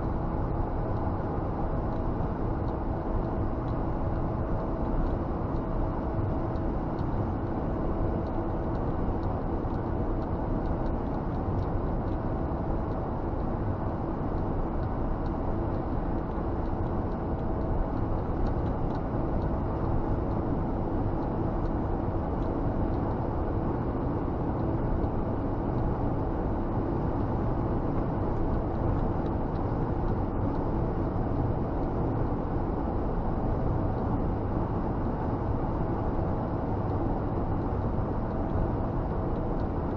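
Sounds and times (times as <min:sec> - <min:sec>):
truck engine and road noise: 0:00.0 - 0:39.9.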